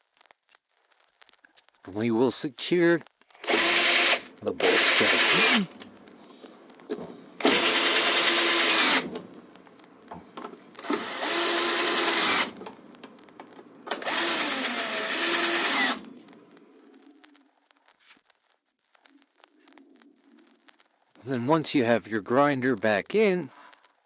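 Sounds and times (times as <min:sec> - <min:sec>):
power drill running: 0:03.4 - 0:05.7, 0:07.4 - 0:09.1, 0:10.8 - 0:12.6, 0:13.9 - 0:16.0.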